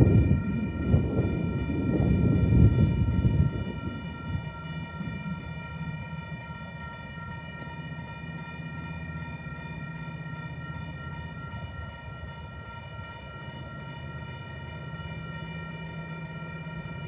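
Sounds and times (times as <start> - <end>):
high whine: 0.0 - 17.0
locomotive engine rumble: 0.0 - 17.0.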